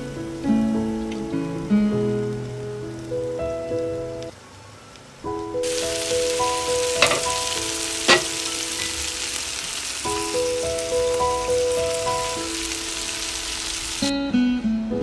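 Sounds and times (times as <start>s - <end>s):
food frying in oil: 5.2s - 14.1s.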